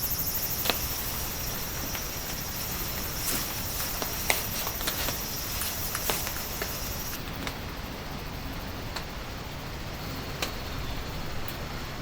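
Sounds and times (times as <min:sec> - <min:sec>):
insects chirping: 0:00.0 - 0:11.8
light rain: 0:00.4 - 0:07.7
drips tapping: 0:00.6 - 0:07.2.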